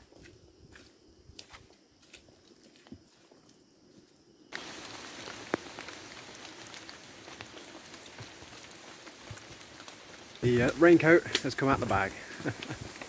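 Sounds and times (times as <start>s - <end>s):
steady rain falling: 4.5s - 13.0s.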